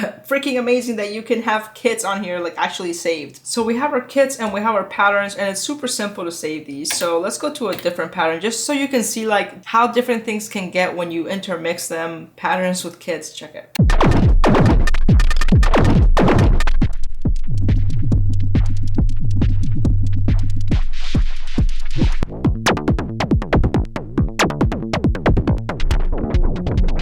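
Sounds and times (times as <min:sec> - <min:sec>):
electronic drum beat: 0:13.8 - 0:16.9, 0:22.0 - 0:27.0.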